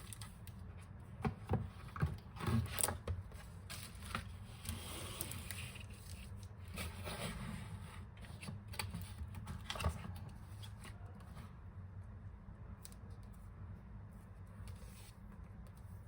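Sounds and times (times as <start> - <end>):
packaging rustling and scraping: 1.8 - 11.2.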